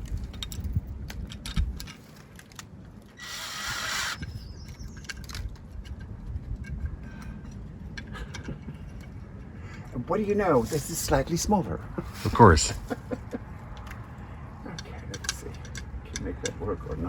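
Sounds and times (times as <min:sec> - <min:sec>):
tools and fixings clicking: 0:13.7 - 0:17.0.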